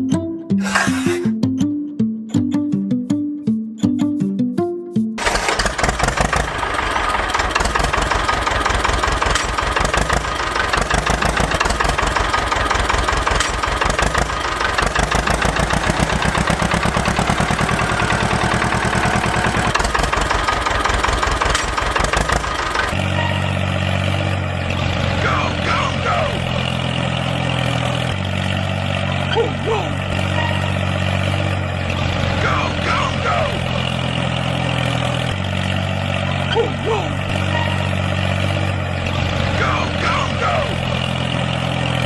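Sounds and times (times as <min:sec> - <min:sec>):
background music: 0:00.0 - 0:05.2
small tractor engine chugging: 0:05.2 - 0:42.0.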